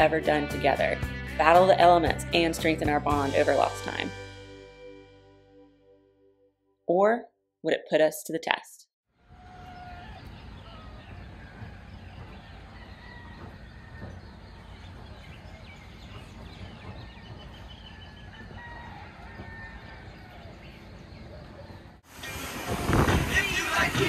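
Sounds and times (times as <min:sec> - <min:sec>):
birds chirping and calling: 0:09.4 - 0:22.0.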